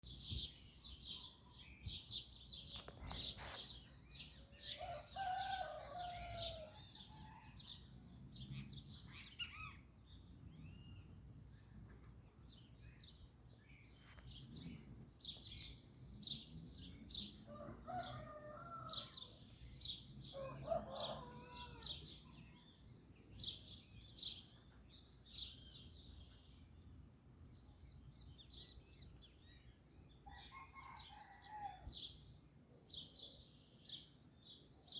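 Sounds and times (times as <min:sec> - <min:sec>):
small birds chirping: 0:00.0 - 0:34.9
rooster crowing: 0:04.7 - 0:07.3, 0:17.5 - 0:19.2, 0:20.3 - 0:22.0.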